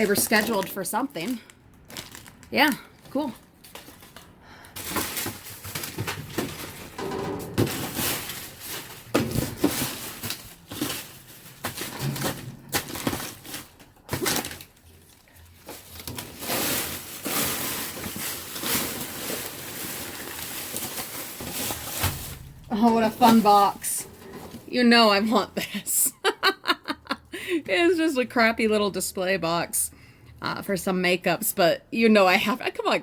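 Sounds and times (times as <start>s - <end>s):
rustling plastic and cardboard: 0.0s - 25.0s.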